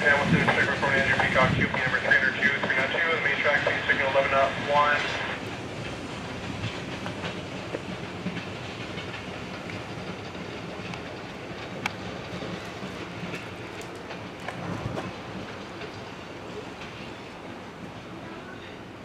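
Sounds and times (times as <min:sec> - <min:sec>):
train rumbling past: 0:00.0 - 0:19.0
wheels clicking over track: 0:05.4 - 0:17.2.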